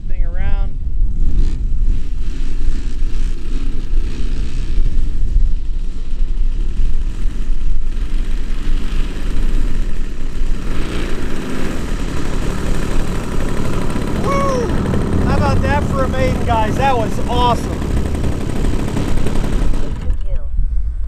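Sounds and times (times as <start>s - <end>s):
model plane engine: 1.3s - 20.2s
wind buffeting microphone: 10.5s - 21.0s.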